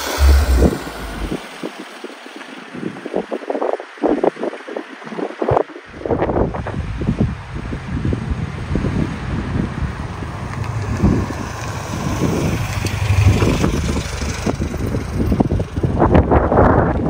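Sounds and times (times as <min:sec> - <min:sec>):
car engine running: 0:00.0 - 0:01.8, 0:10.0 - 0:16.4
wind buffeting microphone: 0:00.0 - 0:17.0.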